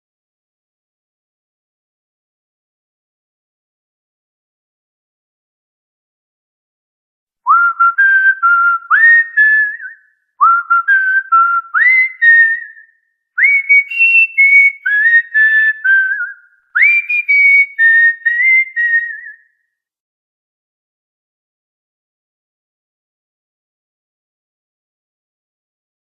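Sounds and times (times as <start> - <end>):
melodic whistling: 7.5 - 19.6.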